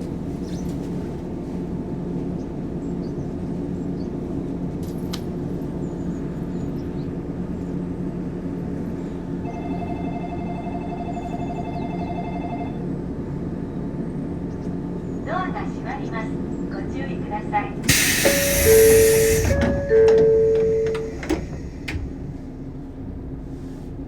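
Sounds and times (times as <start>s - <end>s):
electric train humming: 1.9s - 24.0s
electronic departure bell ringing: 9.4s - 12.8s, 18.2s - 21.6s.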